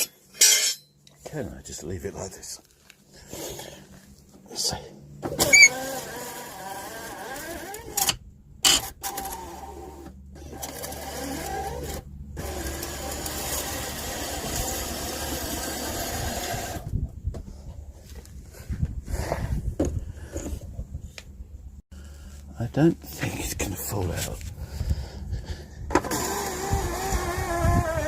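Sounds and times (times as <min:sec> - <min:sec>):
electric step motor running: 0:05.2 - 0:08.1, 0:08.8 - 0:16.9, 0:25.9 - 0:28.0.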